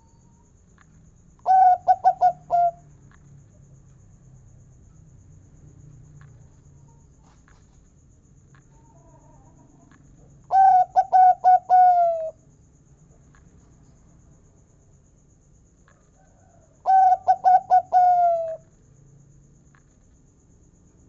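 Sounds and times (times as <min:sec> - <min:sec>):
dove cooing: 0:01.5 - 0:02.8, 0:10.5 - 0:12.4, 0:16.8 - 0:18.6
faint clicks: 0:03.0 - 0:04.0, 0:05.9 - 0:10.3.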